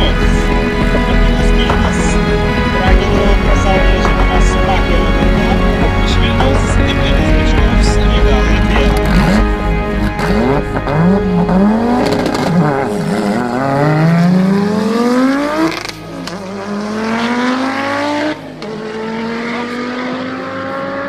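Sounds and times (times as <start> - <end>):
drag car engine revving and accelerating: 7.2 - 21.0.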